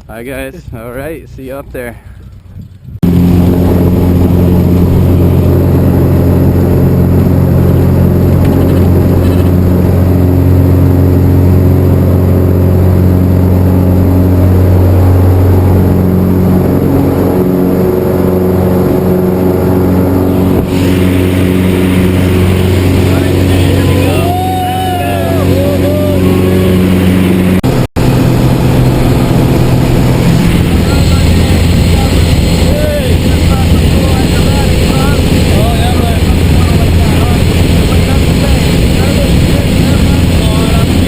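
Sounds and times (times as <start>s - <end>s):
propeller plane engine droning: 0.0s - 41.0s.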